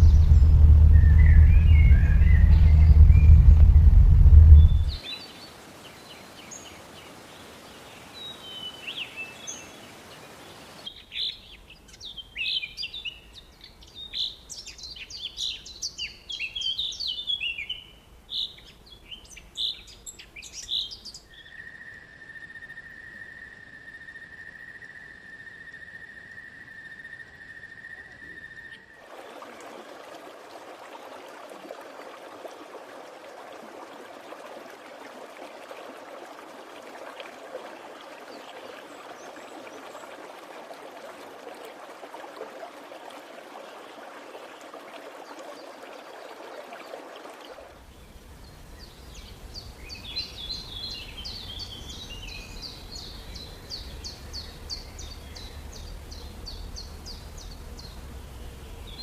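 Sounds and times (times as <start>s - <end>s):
birds chirping: 0.0s - 5.3s, 47.8s - 59.0s
running water: 0.0s - 12.1s, 28.8s - 59.0s.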